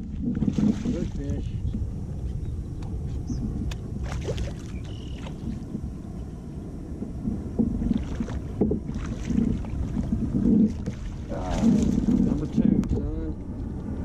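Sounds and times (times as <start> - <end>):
water sloshing around kayak: 0.0 - 1.3, 4.0 - 6.2, 7.0 - 12.7
water splashes: 0.0 - 1.4, 4.0 - 5.9, 7.0 - 12.7
wind rumbling on microphone: 0.0 - 14.0.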